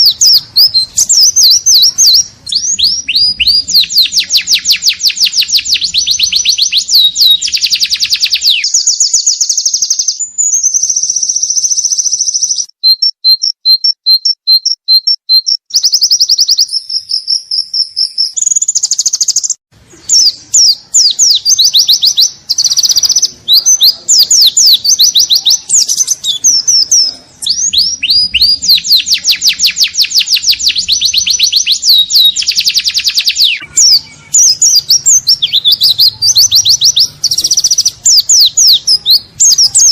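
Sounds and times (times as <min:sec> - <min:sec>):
small bird singing sharp chirps: 0:00.0 - 0:39.9.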